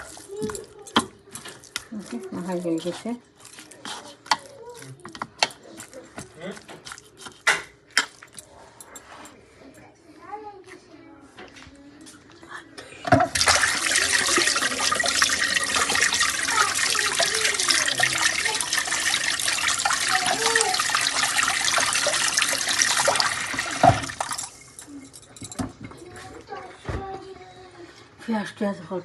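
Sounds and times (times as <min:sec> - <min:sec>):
tap water running into sink: 0:13.1 - 0:24.8.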